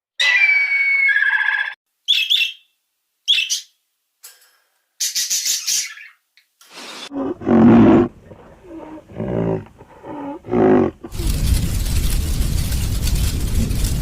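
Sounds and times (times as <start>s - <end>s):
large animal roaring: 7.1s - 11.3s
steady rumbling noise: 7.3s - 14.0s.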